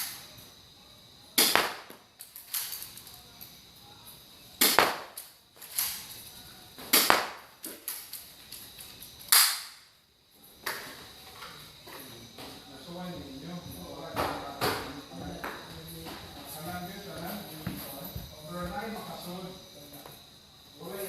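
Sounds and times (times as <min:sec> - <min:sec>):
airsoft pistol shots: 0:01.4 - 0:02.0, 0:04.6 - 0:05.2, 0:06.9 - 0:07.5, 0:09.3 - 0:09.8.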